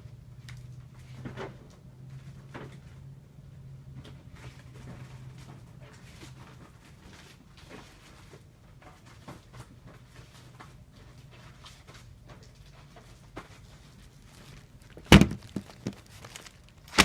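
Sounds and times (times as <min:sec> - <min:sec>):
rustling of comic books: 0:04.2 - 0:17.0
tape torn on dispenser cutter: 0:15.1 - 0:17.0.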